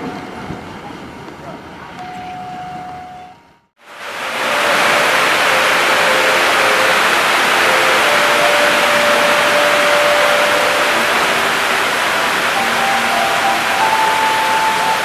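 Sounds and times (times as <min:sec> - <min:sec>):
heavy rain pouring: 0:03.8 - 0:15.0.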